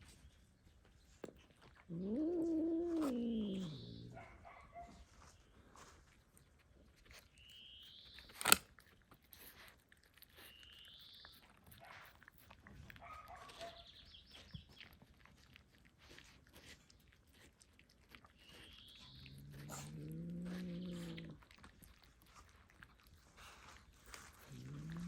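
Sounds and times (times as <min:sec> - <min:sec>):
wet chewing and crunching: 0:00.0 - 0:25.0.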